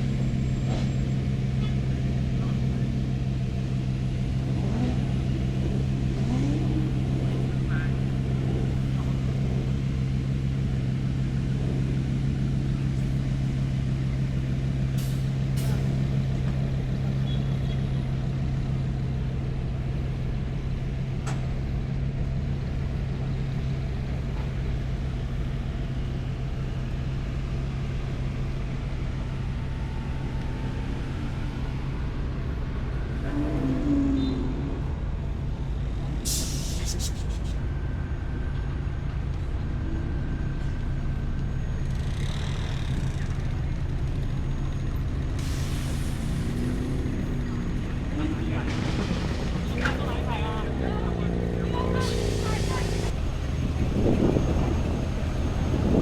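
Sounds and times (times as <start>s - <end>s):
vehicle engine running: 0.0s - 56.0s
faint voices: 46.4s - 56.0s.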